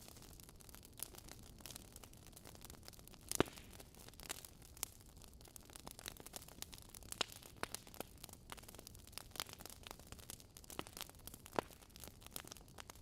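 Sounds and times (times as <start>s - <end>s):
faint fire hiss: 0.0s - 5.0s
fire crackling and popping: 0.0s - 13.0s.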